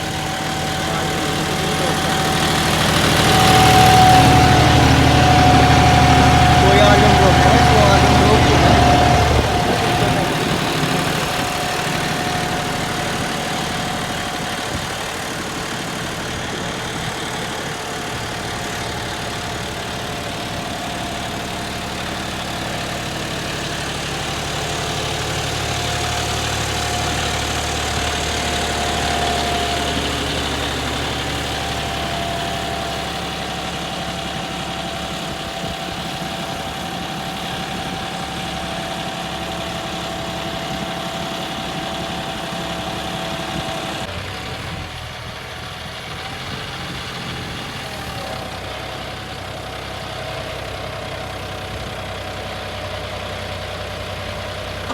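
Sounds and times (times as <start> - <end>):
steady whine: 0.0 - 22.1
tractor diesel engine running: 0.0 - 54.9.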